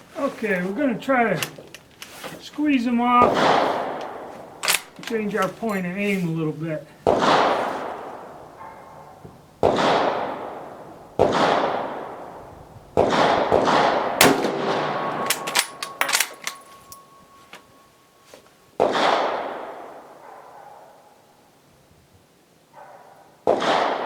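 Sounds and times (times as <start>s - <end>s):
rifle shots echoing: 3.1s - 5.5s, 7.0s - 8.6s, 9.6s - 17.8s, 18.8s - 20.2s, 23.4s - 24.0s
rifle bolt clicking: 4.0s - 5.2s, 15.1s - 17.6s.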